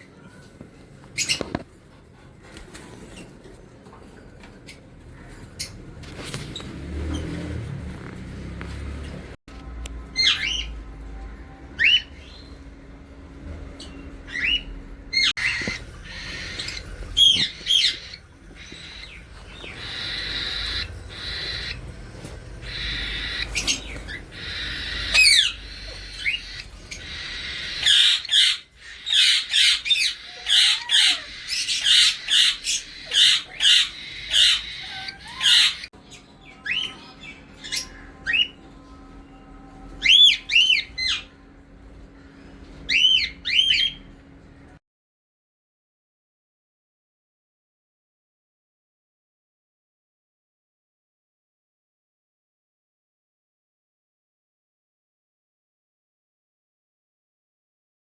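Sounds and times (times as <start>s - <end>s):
parrots squawking: 10.1s - 10.8s, 13.8s - 38.8s, 39.8s - 41.4s, 42.4s - 44.2s
parrots raspy chatter: 14.1s - 35.9s.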